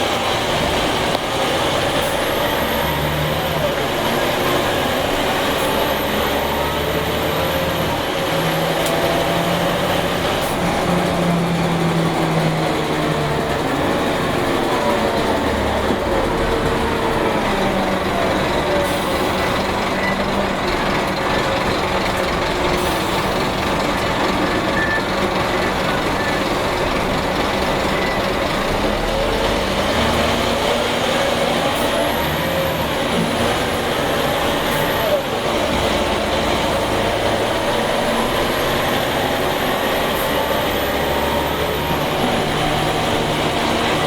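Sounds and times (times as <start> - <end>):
bus engine running: 0.0 - 44.0.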